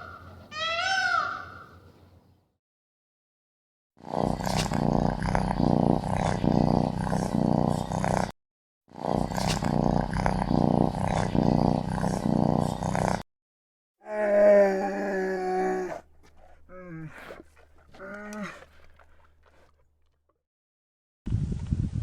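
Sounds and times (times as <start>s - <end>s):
animal growling: 4.0s - 13.3s, 14.0s - 20.2s.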